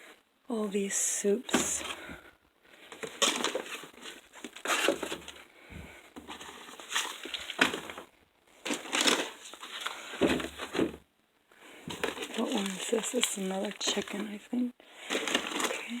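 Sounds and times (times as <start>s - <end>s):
packaging crinkling and rustling: 2.8s - 5.5s, 6.2s - 11.0s, 11.8s - 16.0s.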